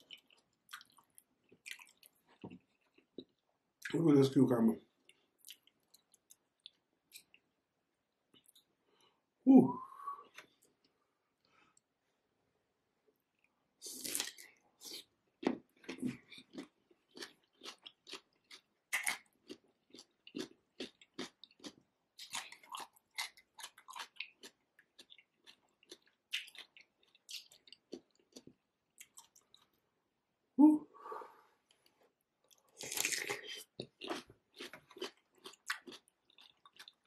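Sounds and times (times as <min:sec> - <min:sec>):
crunchy chewing: 0:15.8 - 0:29.7, 0:31.7 - 0:37.0.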